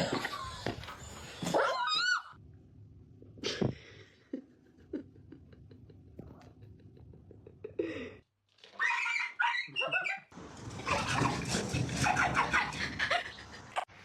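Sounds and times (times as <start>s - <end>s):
pet animal high calls: 8.8s - 10.3s.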